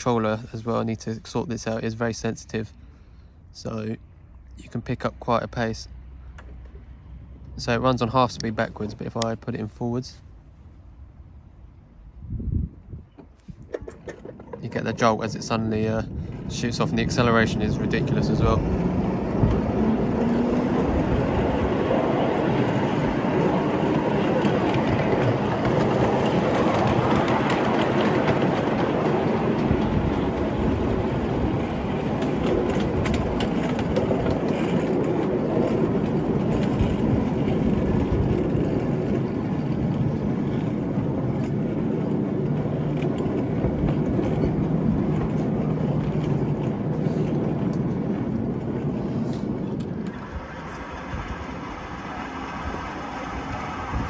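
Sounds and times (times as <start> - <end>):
wheels rumbling on rail: 0.0 - 54.0
electric traction motors: 15.8 - 54.0.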